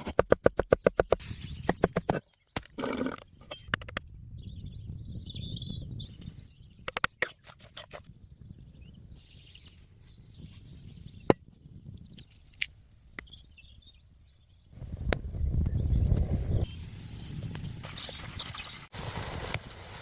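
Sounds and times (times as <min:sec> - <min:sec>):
birds chirping: 0:00.7 - 0:07.2, 0:13.2 - 0:14.8, 0:17.9 - 0:18.9.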